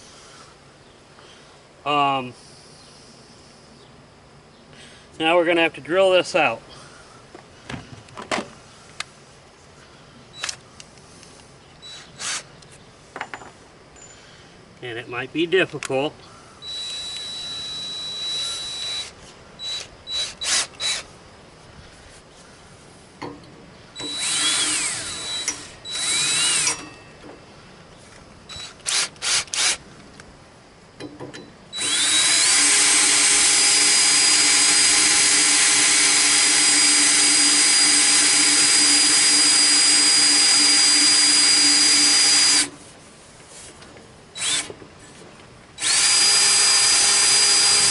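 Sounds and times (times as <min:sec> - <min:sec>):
power drill whining: 0:11.8 - 0:12.4, 0:16.6 - 0:21.1, 0:24.0 - 0:27.0, 0:28.5 - 0:29.8, 0:31.8 - 0:42.8, 0:44.4 - 0:44.8, 0:45.8 - 0:47.9.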